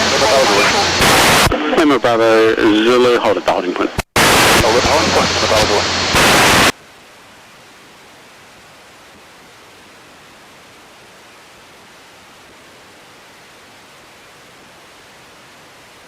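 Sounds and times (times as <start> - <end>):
radio hiss: 0.0 - 6.8.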